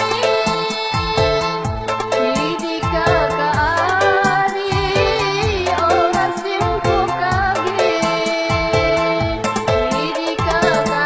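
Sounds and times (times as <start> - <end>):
instrumental backing: 0.0 - 11.0
steady drum beat: 0.0 - 11.0
woman singing ornamented melody: 0.0 - 11.0.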